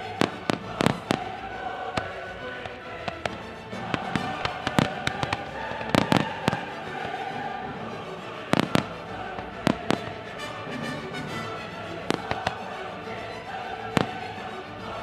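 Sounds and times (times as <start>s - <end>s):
music with held tones: 0.0s - 15.0s
fireworks bursting: 3.2s - 7.2s, 8.5s - 10.5s, 14.0s - 14.2s.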